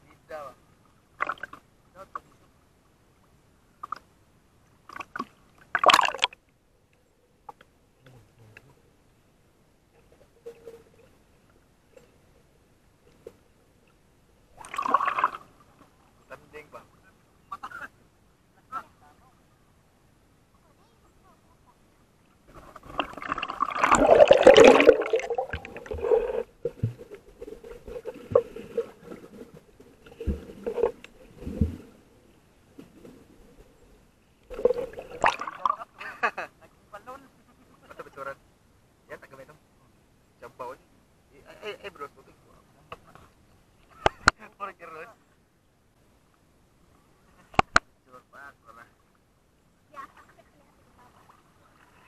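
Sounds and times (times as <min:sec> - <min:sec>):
faint steady hum: 0:00.0 - 0:52.0
water splashing and sloshing: 0:00.8 - 0:02.4, 0:04.8 - 0:06.5, 0:13.0 - 0:16.2, 0:22.4 - 0:36.0, 0:50.2 - 0:52.0
muffled underwater clicks: 0:04.9 - 0:08.8, 0:42.9 - 0:44.4, 0:47.5 - 0:47.9
loud splash: 0:23.0 - 0:26.4, 0:34.5 - 0:35.8
underwater gurgling and bubbling: 0:23.0 - 0:29.5.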